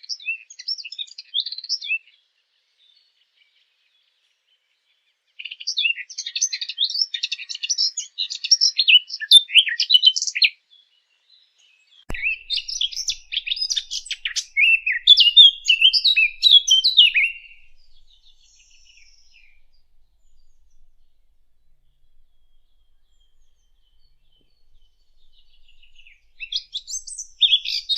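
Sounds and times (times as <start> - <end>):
warbler singing: 5.4 - 27.9
soft click: 12.1 - 14.4.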